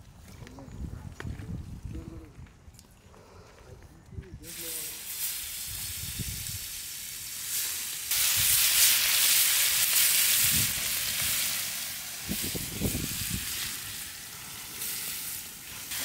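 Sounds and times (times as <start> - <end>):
chicken sizzling in a pan: 4.5 - 16.0.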